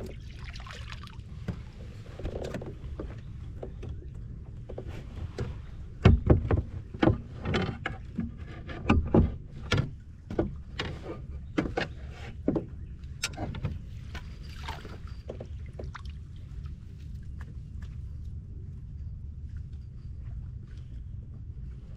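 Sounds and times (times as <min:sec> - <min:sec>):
short water splashes: 0:00.0 - 0:01.7, 0:14.0 - 0:18.1
steady low rumble: 0:12.6 - 0:21.9.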